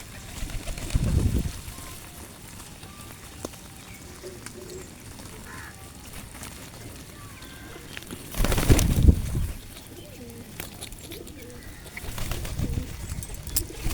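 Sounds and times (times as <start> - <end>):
pigeons cooing: 0.0 - 13.9
faint bird calls: 1.7 - 6.3, 9.6 - 13.9.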